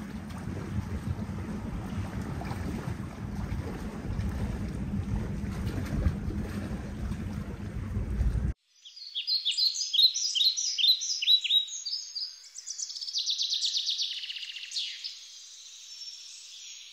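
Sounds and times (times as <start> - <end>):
wind rumble: 0.0 - 8.6
birds chirping: 8.8 - 15.2.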